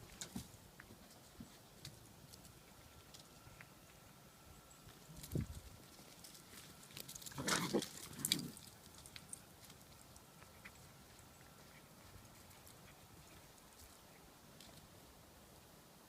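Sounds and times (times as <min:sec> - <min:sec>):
puppies growling: 0:07.2 - 0:08.7.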